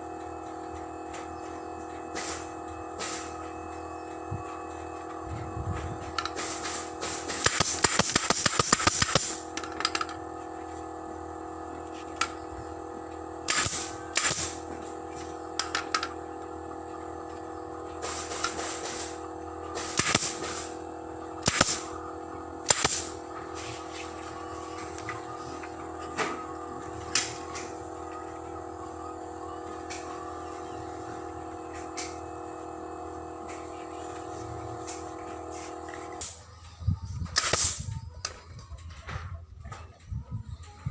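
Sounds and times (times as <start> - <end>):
bursts of air: 2.1 - 3.4, 6.2 - 9.5, 18.0 - 19.2, 19.8 - 20.8, 22.6 - 24.2
staple gun firing: 7.3 - 10.1, 37.4 - 37.8.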